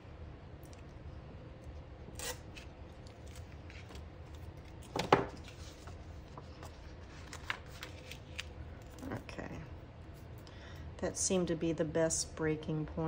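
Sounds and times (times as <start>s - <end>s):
tape and paper rustling: 2.2s - 9.2s.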